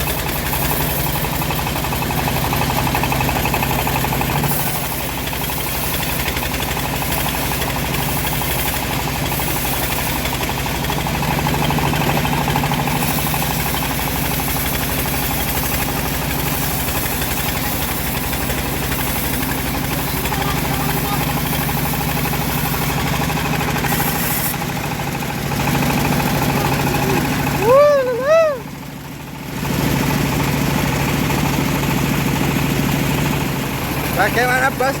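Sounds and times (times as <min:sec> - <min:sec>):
sawmill engine drone: 0:00.0 - 0:35.0.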